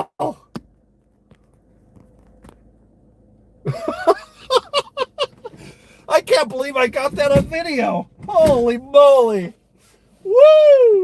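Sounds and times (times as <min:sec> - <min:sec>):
low background hum: 0:00.0 - 0:11.0
man's voice: 0:06.1 - 0:09.5.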